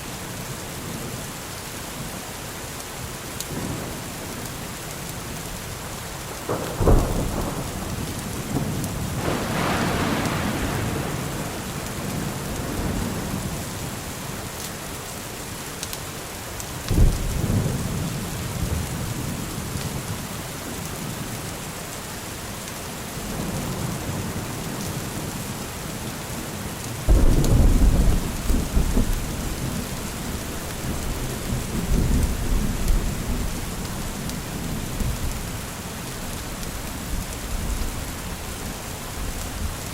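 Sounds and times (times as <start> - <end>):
steady rain: 0.0 - 39.9
thunder claps and rumbles: 3.4 - 14.2, 16.9 - 20.3, 27.1 - 35.7.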